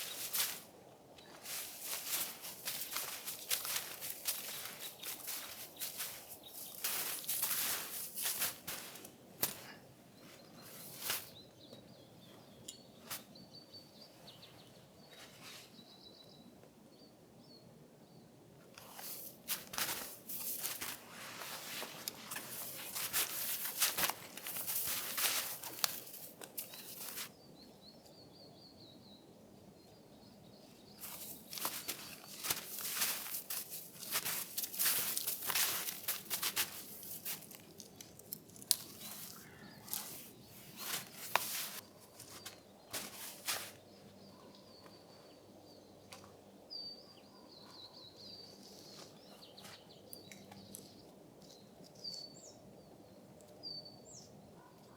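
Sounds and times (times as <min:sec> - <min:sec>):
crunching and rustling: 0:00.0 - 0:11.4, 0:18.8 - 0:27.3, 0:31.0 - 0:44.8
faint bird chirps: 0:38.9 - 0:54.9.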